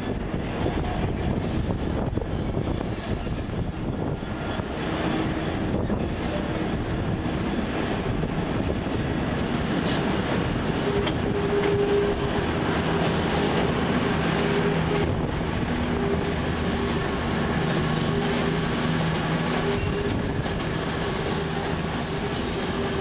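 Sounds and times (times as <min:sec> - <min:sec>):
train wheels rumbling and clattering: 0:00.0 - 0:23.0
high wheel squeal: 0:15.9 - 0:23.0.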